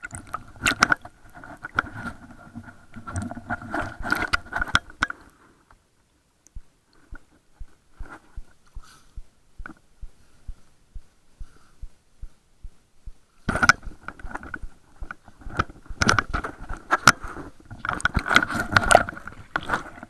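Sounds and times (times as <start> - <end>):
soft low underwater thumps: 6.5 - 16.4.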